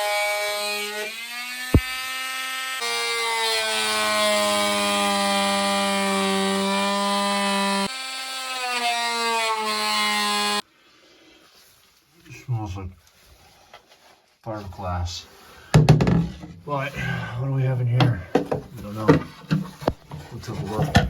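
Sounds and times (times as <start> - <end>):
multi-tool cutting buzzing whine: 0.0 - 10.6.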